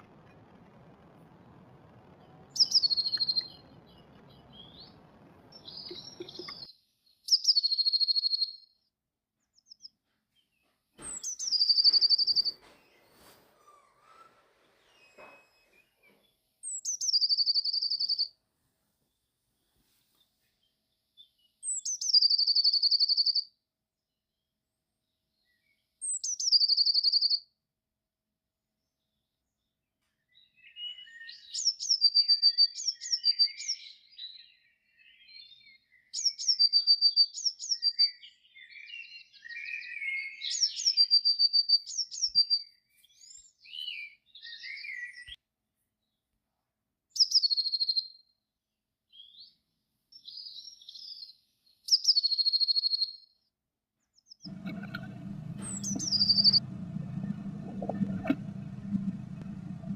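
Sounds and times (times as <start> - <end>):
bird singing trills: 2.5 - 6.7, 7.3 - 8.6, 11.0 - 12.8, 14.8 - 18.3, 21.6 - 23.4, 26.0 - 27.4, 54.2 - 59.8
bird chattering calls: 54.5 - 59.4.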